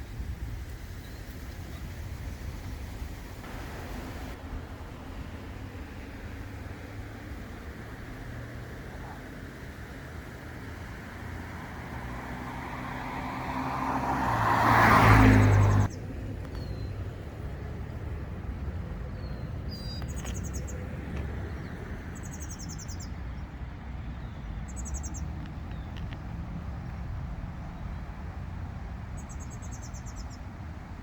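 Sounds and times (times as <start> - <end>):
distant traffic rumble: 0.0 - 31.0
car passing close by: 3.2 - 16.0
small birds chirping: 8.8 - 17.1, 18.6 - 28.2, 29.1 - 30.6.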